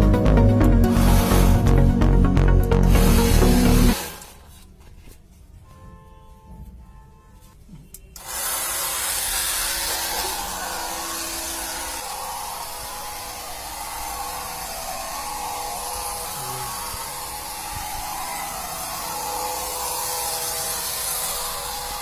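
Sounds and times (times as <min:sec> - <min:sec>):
small electric motor whirring: 0:00.8 - 0:01.8, 0:02.6 - 0:04.5, 0:08.2 - 0:22.0.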